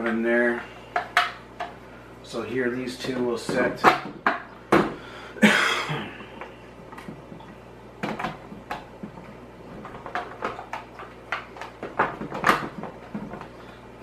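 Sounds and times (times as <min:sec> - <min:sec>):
plastic basket knocks and clicks: 0:07.0 - 0:13.5.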